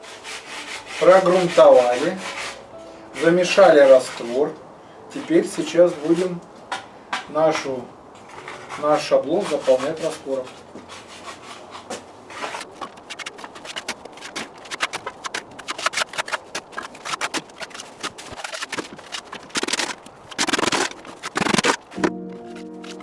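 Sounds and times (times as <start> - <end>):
tool scraping wet mortar: 0.0 - 2.6, 3.2 - 4.4, 5.2 - 6.4, 8.4 - 23.0
music: 0.0 - 4.4, 22.0 - 23.0.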